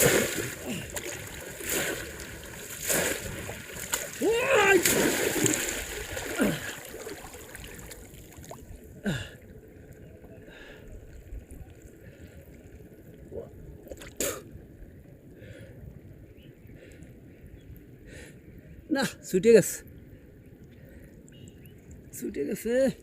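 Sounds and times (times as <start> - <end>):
shallow water splashing: 0.0 - 14.4.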